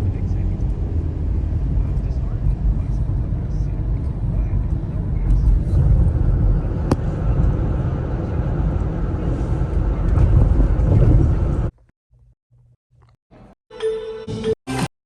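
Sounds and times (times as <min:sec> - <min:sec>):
low vehicle rumble: 0:00.0 - 0:11.7
wind buffeting microphone: 0:00.2 - 0:11.7.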